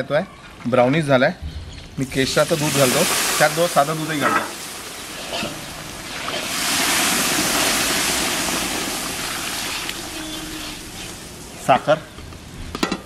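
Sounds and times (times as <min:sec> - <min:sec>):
milk hissing in hot fat: 0:02.0 - 0:11.7.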